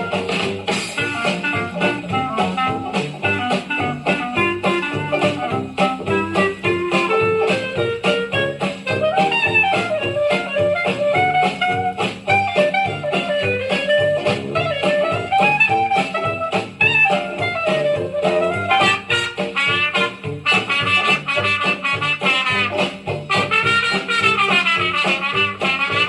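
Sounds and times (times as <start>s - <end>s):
jazz music with horns: 0.0s - 26.0s.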